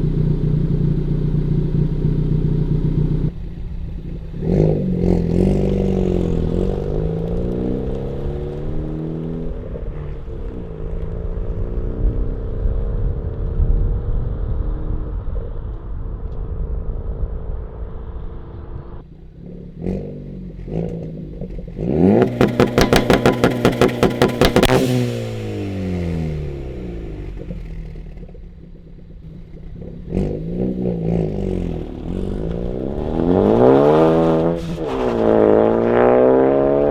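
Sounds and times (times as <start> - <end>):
car engine accelerating: 0.0 - 13.3, 18.1 - 36.9
engine revs blipped: 21.8 - 28.4, 30.0 - 36.9
engine stuttering on rev limiter: 21.9 - 36.9.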